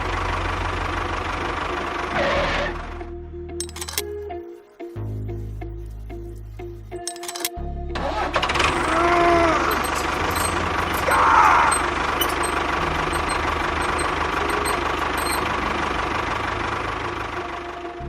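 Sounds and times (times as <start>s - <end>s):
small engine knocking rattle: 8.6s - 16.2s.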